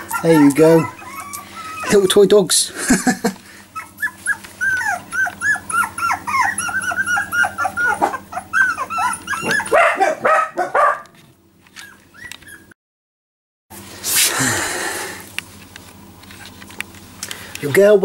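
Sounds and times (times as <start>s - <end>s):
puppies whining and yipping: 0.0s - 2.2s, 3.5s - 10.8s, 11.6s - 12.8s.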